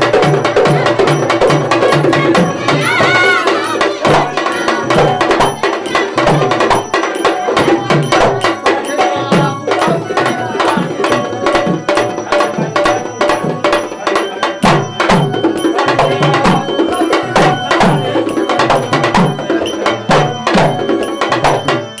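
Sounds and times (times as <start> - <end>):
hand drum beating rhythm: 0.0 - 22.0
held instrument tones: 0.0 - 22.0
sharp percussion strikes: 0.0 - 22.0.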